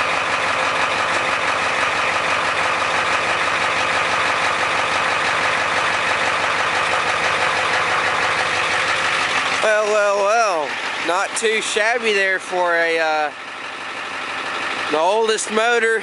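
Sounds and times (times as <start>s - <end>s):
diesel truck engine idling: 0.0s - 16.0s.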